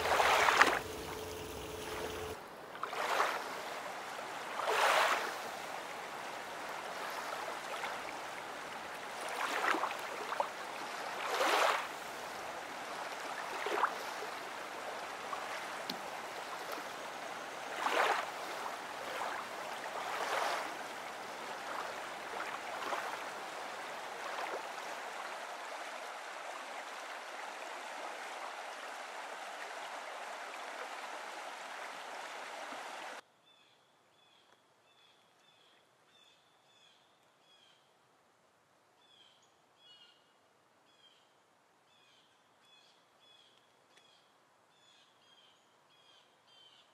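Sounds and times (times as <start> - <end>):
water rushing and splashing: 0.0 - 33.2.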